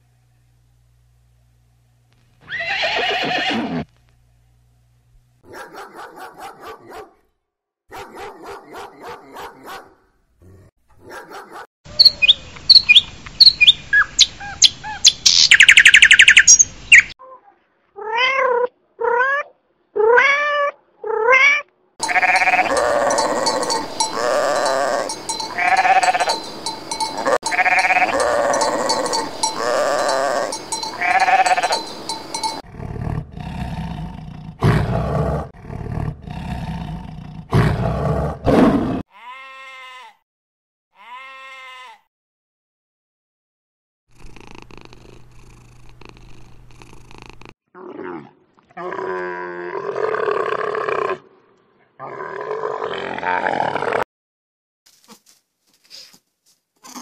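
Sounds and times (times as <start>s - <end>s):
horse whinnying: 2.4s - 3.9s
sheep bleating: 22.0s - 32.5s, 39.1s - 40.2s, 41.0s - 42.0s
short pulsed animal calls: 22.0s - 32.6s.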